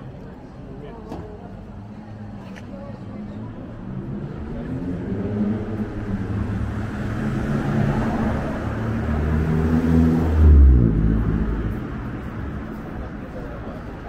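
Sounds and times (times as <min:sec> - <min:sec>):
vehicle engine passing: 0:02.9 - 0:14.0.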